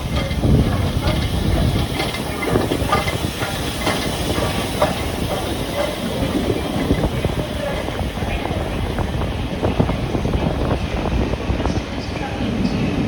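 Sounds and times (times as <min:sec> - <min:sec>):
irregular clanks: 0:00.0 - 0:08.0
steam locomotive hissing: 0:00.0 - 0:13.0.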